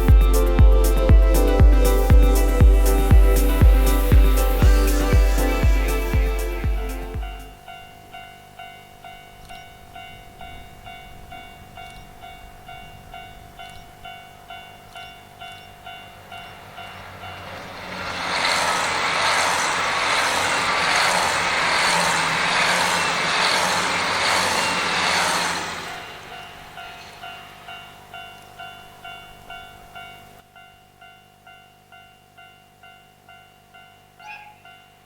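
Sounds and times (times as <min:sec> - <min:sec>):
diesel train passing: 0:00.0 - 0:09.2, 0:09.8 - 0:30.4.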